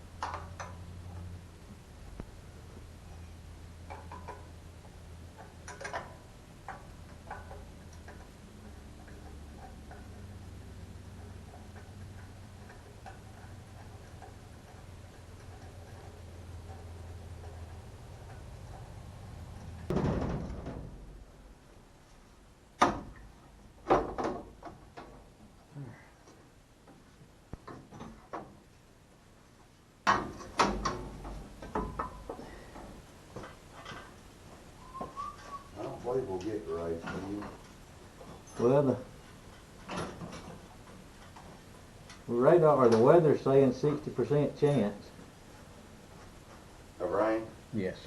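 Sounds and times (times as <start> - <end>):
steady low hum: 0.0 - 48.0
sharp knocks: 19.9 - 21.1.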